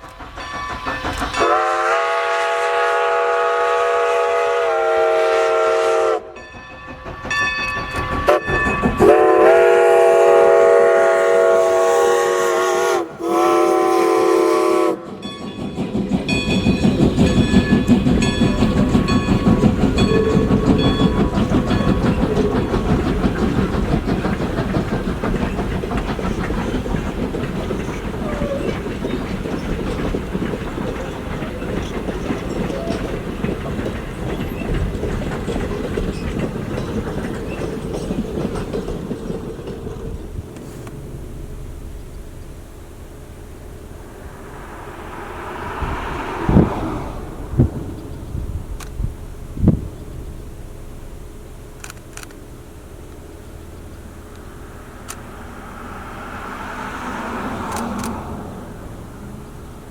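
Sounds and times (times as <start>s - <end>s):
train wheels clickety-clack: 0.0s - 41.0s, 44.0s - 50.5s, 54.0s - 59.9s
steam whistle blasts: 1.4s - 6.4s, 8.3s - 15.2s.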